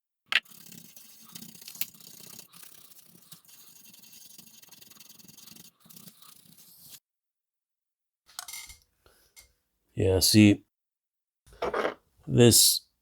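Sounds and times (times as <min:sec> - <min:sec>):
brush scrubbing circuit board: 0:00.4 - 0:07.0.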